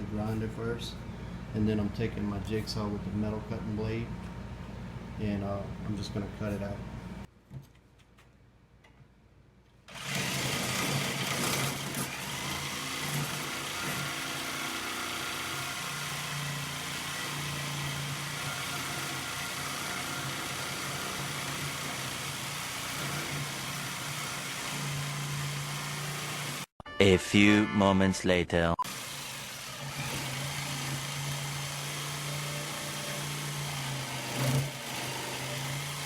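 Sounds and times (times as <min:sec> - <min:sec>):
jigsaw cutting steel plate: 0:09.9 - 0:26.7, 0:28.8 - 0:36.0.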